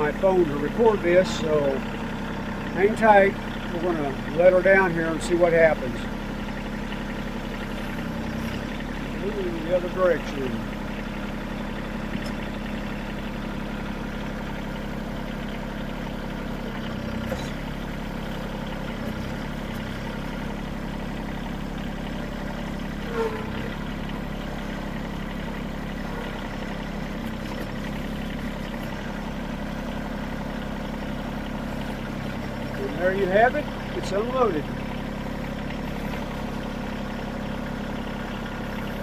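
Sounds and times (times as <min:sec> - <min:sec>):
tractor engine running: 0:00.0 - 0:39.0
short squeak: 0:23.0 - 0:23.8.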